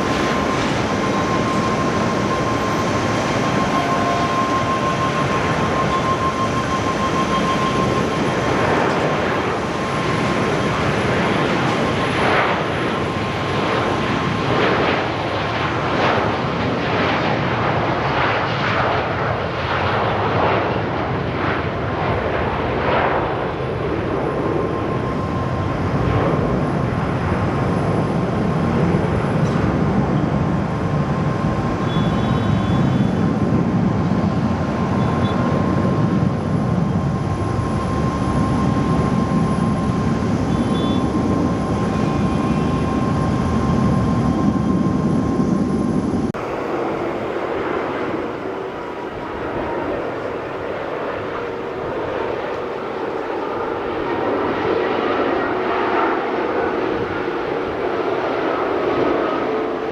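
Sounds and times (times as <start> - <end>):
jet airliner engines roaring: 0.0 - 59.9.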